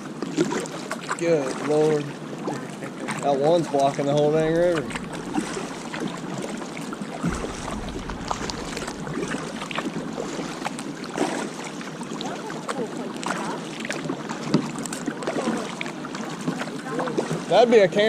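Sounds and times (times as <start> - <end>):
kayak paddle splashing: 0.0 - 18.0
rushing water and wind: 0.0 - 18.0
water dripping: 4.2 - 12.4.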